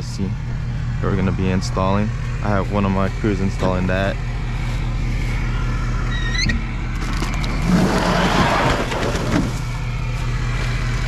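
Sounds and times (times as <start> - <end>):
vehicle engine humming: 0.0 - 11.0
rising squeak: 5.4 - 9.7.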